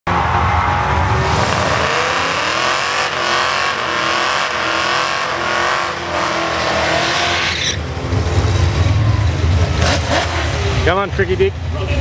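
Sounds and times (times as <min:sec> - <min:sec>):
engine revving hard: 0:01.0 - 0:07.8, 0:09.7 - 0:10.7.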